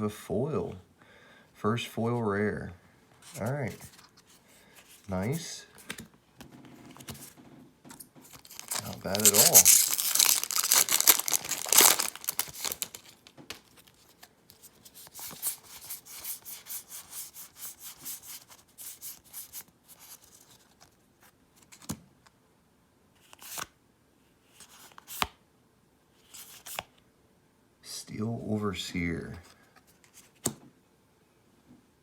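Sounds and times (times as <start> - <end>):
cards rustling and sliding: 3.2 - 7.4, 8.2 - 20.9, 23.2 - 23.7, 24.5 - 25.4, 26.2 - 26.9, 29.7 - 30.6
foil wrapper crinkling and tearing: 8.4 - 14.0.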